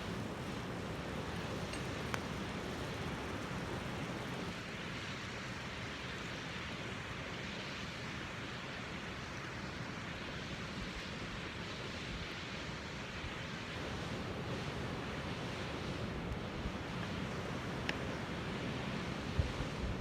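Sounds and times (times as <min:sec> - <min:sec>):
waterfall and stream rushing: 0:00.0 - 0:04.9.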